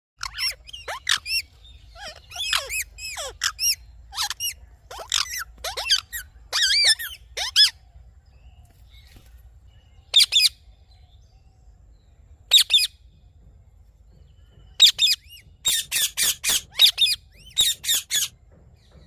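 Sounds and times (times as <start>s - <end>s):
parrot screeching: 0.2s - 7.7s.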